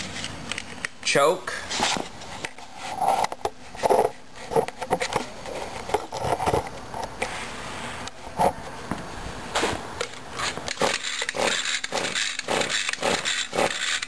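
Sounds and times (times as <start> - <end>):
pull-start cord ratcheting whir: 10.7 - 14.0.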